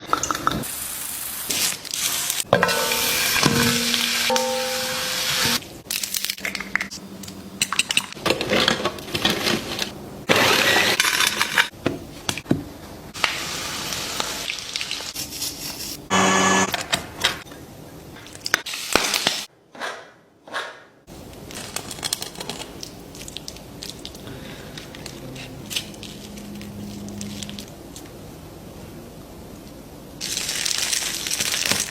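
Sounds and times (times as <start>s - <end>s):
crackling frying: 0.0s - 8.2s, 13.1s - 16.1s, 21.1s - 28.2s, 30.2s - 31.9s
dishes clattering: 2.5s - 5.6s
short pitched sound: 2.8s - 5.6s.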